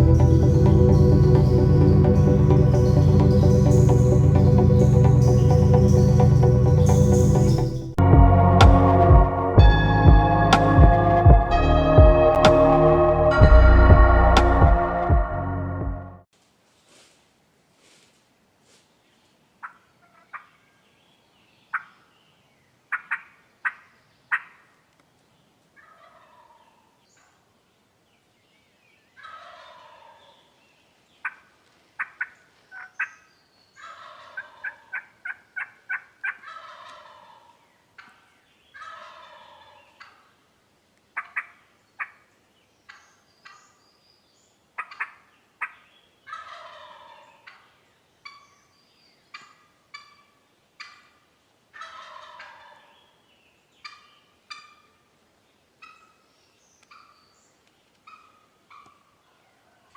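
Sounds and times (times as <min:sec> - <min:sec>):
turkey gobbling: 0:25.8 - 0:26.8, 0:29.2 - 0:30.2, 0:33.8 - 0:40.3, 0:44.8 - 0:48.4, 0:49.3 - 0:53.0, 0:53.8 - 0:55.0, 0:58.1 - 0:59.1
turkey clucking: 0:29.2 - 0:30.1, 0:33.8 - 0:38.2, 0:38.8 - 0:40.2, 0:44.8 - 0:48.4, 0:51.8 - 0:53.0, 0:53.8 - 0:55.0.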